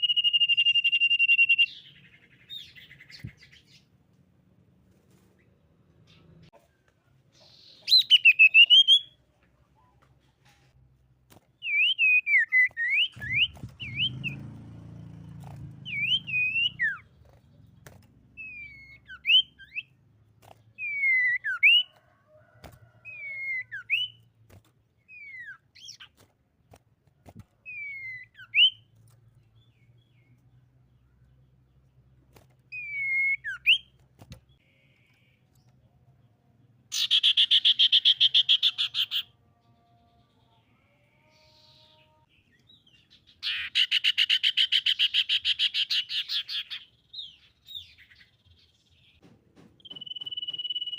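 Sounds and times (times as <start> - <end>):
bird whistling song: 0.0 - 3.9, 7.4 - 9.2, 11.6 - 14.4, 15.8 - 17.2, 18.4 - 20.0, 20.8 - 22.0, 23.0 - 24.2, 25.1 - 26.1, 27.6 - 28.9, 32.7 - 34.0, 36.9 - 39.3, 42.7 - 49.2, 49.8 - 50.9.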